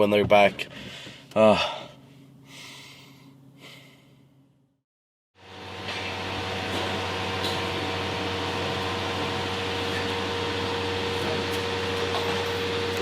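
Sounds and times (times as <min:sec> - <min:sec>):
fan humming: 0:05.4 - 0:13.0.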